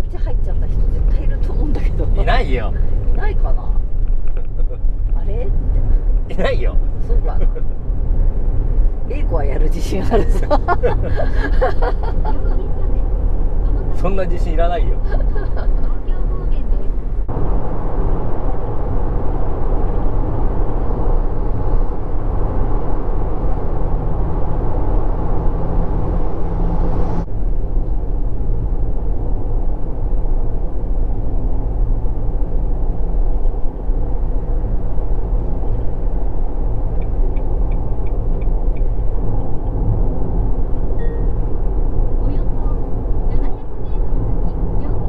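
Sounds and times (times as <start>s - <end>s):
car road and engine rumble: 0.0s - 45.0s.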